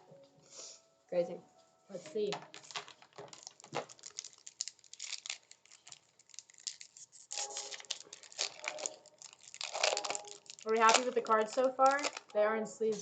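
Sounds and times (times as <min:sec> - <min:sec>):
foil wrapper tearing and crinkling: 0:02.4 - 0:12.4.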